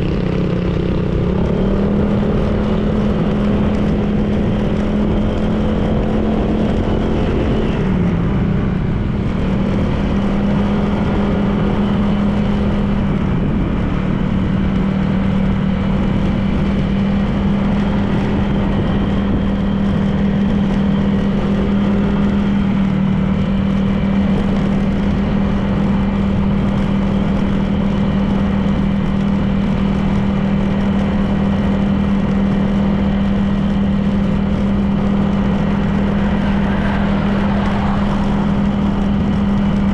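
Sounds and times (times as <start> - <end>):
road noise: 0.0 - 39.9
scooter engine running: 0.0 - 39.9.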